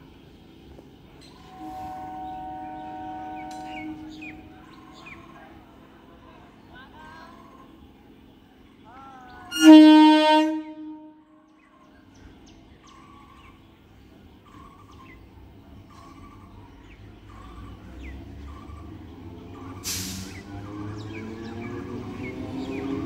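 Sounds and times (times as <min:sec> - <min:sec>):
train rumble approaching: 0:00.0 - 0:23.0
birds chirping: 0:00.1 - 0:23.0
train horn: 0:01.3 - 0:05.2, 0:09.5 - 0:11.5
short hiss: 0:19.8 - 0:20.4.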